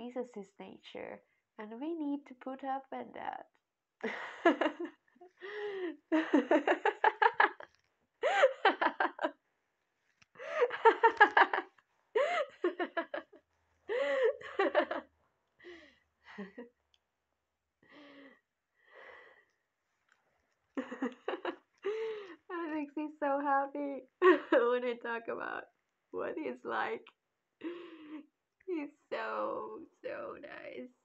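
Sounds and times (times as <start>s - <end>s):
person laughing: 4.1s - 7.6s, 8.2s - 9.3s, 10.4s - 15.0s, 20.8s - 22.2s.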